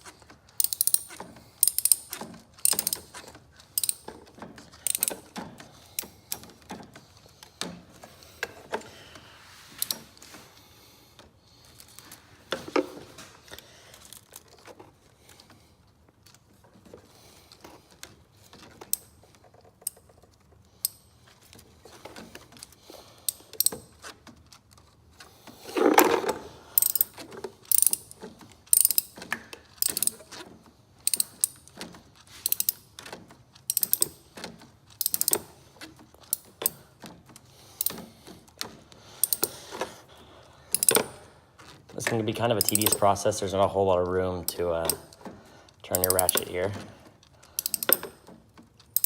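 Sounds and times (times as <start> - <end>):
ratchet wrench clicking: 0.5 - 4.1, 4.8 - 6.5, 23.3 - 24.1, 26.8 - 29.2, 29.8 - 30.4, 31.0 - 31.8, 32.4 - 34.3, 34.9 - 35.6, 39.2 - 39.6, 40.7 - 41.1, 42.6 - 43.0, 45.9 - 46.6, 47.5 - 48.2.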